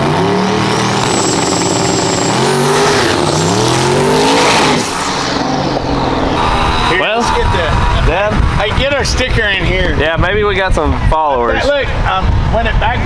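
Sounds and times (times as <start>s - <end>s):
race car accelerating: 0.0s - 10.2s.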